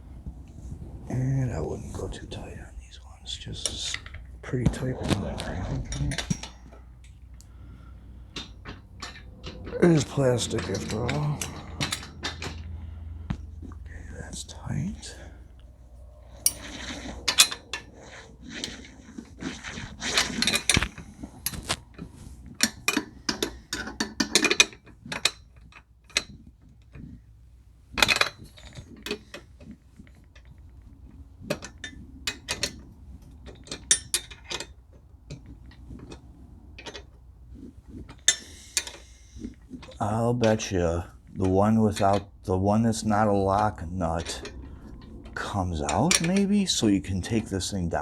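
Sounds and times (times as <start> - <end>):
metal parts being handled: 5.9 - 19.4.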